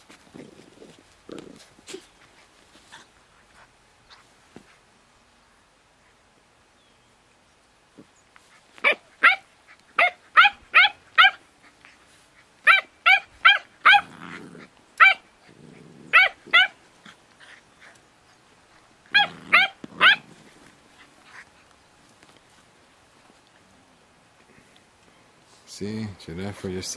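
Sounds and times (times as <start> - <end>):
puppy play-growling: 0.0 - 4.9, 7.9 - 24.7
puppy yapping: 8.8 - 11.8, 12.6 - 21.6.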